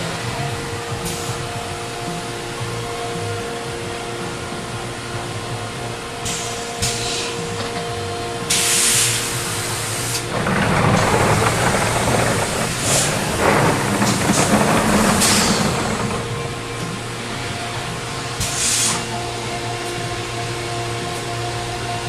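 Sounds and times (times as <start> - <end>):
steady machine hum: 0.0 - 22.0
air hiss spurts: 8.5 - 16.2, 18.4 - 19.1
rough cutting noise: 10.2 - 17.0.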